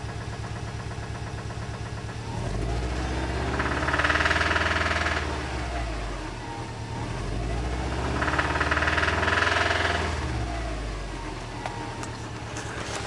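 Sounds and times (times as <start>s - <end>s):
engine knocking: 0.0s - 6.6s, 7.4s - 10.7s
car engine idling and revving: 0.0s - 13.0s.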